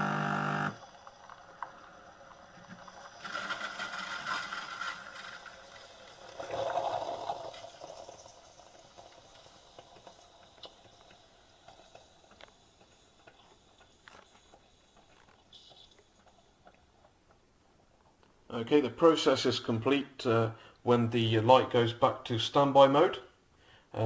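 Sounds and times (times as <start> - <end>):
coffee brewer sputtering: 0.0 - 16.4
faint clicks and drips: 0.8 - 3.6, 5.1 - 18.5.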